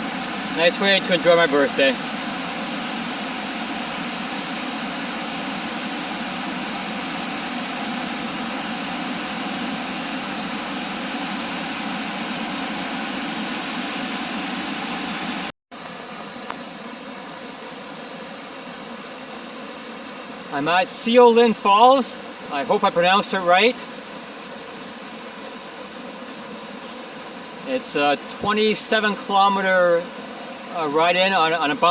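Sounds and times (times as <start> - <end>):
waterfall rushing: 0.0 - 15.5
quieter rush of water: 0.0 - 31.9.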